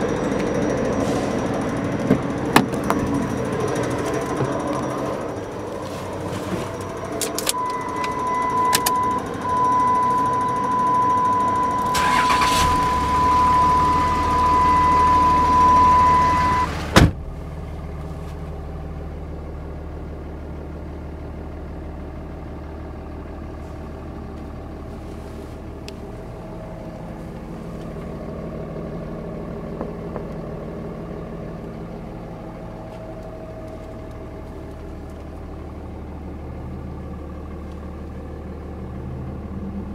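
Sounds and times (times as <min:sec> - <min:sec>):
diesel engine starting and idling: 0:00.0 - 0:39.9
high electronic tone: 0:07.5 - 0:16.7.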